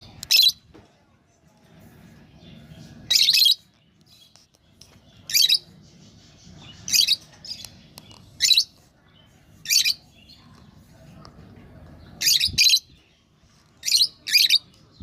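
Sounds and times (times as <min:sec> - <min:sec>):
lovebird chirping: 0:02.4 - 0:10.6, 0:12.1 - 0:15.0.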